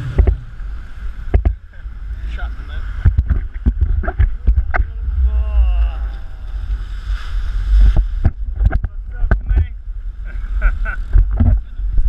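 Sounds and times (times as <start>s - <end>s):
water slapping with sharp knocks: 0.0s - 5.1s, 6.1s - 9.8s, 11.0s - 11.7s
jet ski engine: 0.0s - 7.1s
wind buffeting: 0.0s - 12.0s
person speaking: 4.8s - 6.8s.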